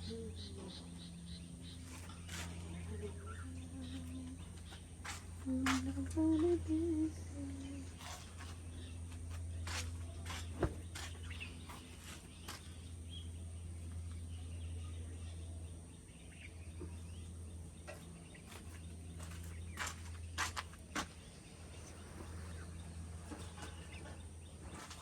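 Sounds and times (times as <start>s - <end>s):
steady low hum: 0.0s - 25.0s
person humming a tune: 2.8s - 4.6s, 5.4s - 8.0s.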